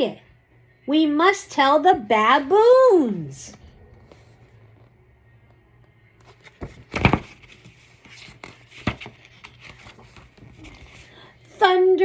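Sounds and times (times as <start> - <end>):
book page turning and rustling: 3.5 - 4.9, 6.2 - 11.5.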